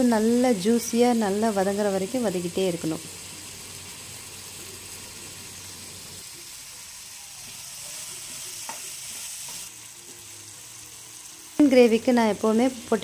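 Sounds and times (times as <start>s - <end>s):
vegetables sizzling in hot oil: 0.0s - 13.0s
steel spoon stirring in pan: 7.4s - 10.2s.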